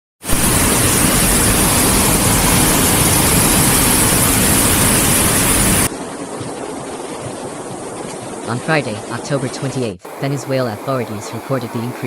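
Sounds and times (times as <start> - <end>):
rushing floodwater: 0.3 - 8.5, 10.1 - 12.0.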